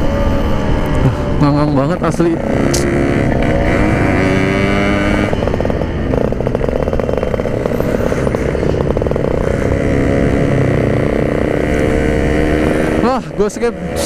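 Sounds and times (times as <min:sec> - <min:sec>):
two-stroke motorcycle engine buzzing: 0:00.0 - 0:14.0
rider talking: 0:01.0 - 0:02.9, 0:12.7 - 0:14.0.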